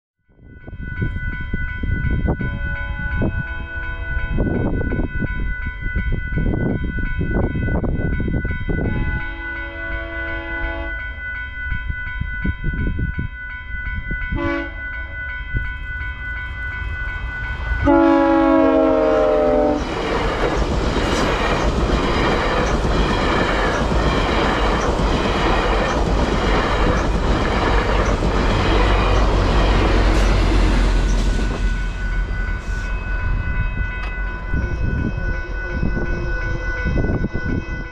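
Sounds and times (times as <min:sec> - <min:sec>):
crossing warning bell ringing: 0:00.4 - 0:37.9
train passing rumble: 0:00.4 - 0:37.9
train horn blasts: 0:02.6 - 0:04.4, 0:08.8 - 0:11.0, 0:14.3 - 0:14.8, 0:17.8 - 0:19.9, 0:28.8 - 0:37.9
wheels clacking over rail joints: 0:19.8 - 0:31.6.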